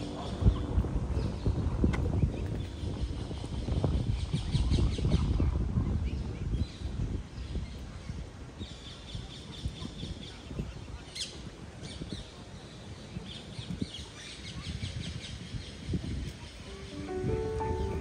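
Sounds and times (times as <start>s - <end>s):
steady low rumble: 0.0s - 8.0s
birds chirping: 0.0s - 18.0s.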